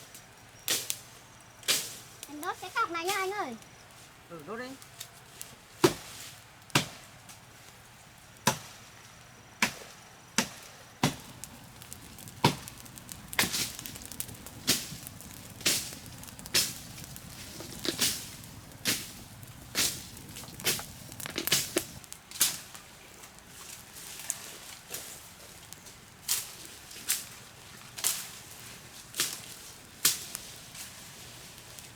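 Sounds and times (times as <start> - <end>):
blade chopping wooden stake: 10.4 - 22.6.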